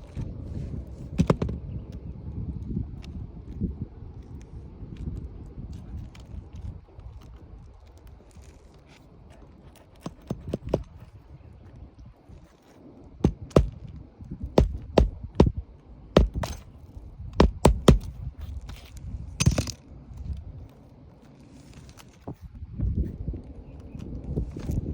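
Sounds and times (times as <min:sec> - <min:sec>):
irregular knocks and thuds: 0:13.2 - 0:13.8, 0:14.6 - 0:15.6, 0:16.2 - 0:16.6, 0:17.4 - 0:18.1.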